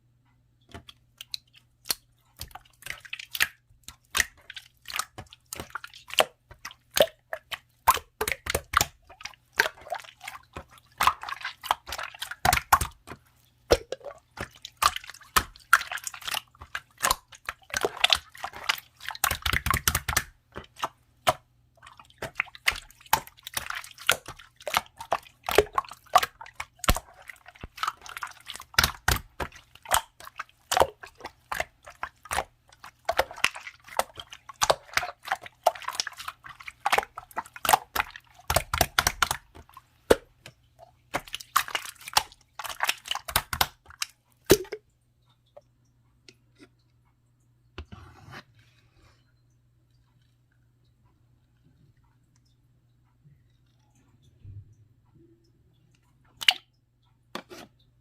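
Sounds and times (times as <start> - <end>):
slime squishing: 0.7 - 44.8
slime clicking and popping: 10.6 - 21.4, 22.2 - 40.3, 41.1 - 44.8.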